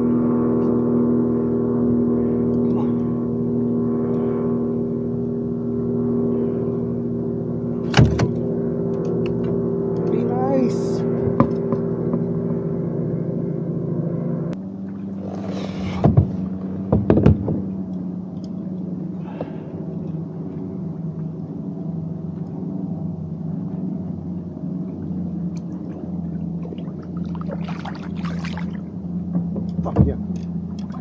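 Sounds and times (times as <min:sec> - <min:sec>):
low motor hum: 0:00.0 - 0:31.0
sharp knocks: 0:15.8 - 0:17.7
rush of water: 0:26.7 - 0:28.8.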